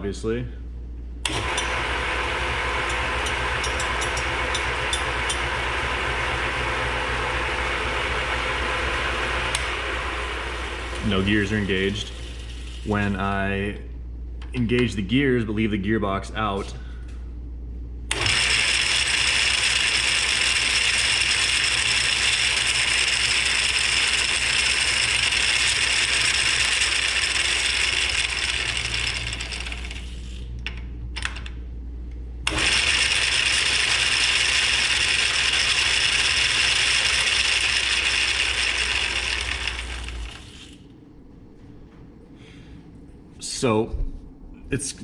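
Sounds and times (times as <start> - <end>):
lathe gears clattering: 2.8 - 5.6, 18.1 - 30.2, 32.5 - 40.8.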